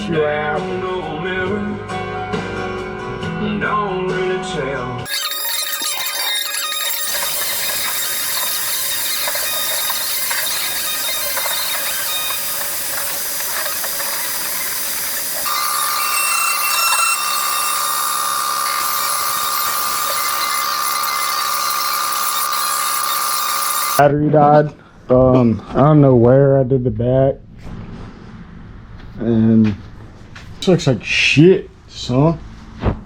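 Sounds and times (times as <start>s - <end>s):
motor whine: 5.1s - 24.0s
power tool running: 5.1s - 24.0s.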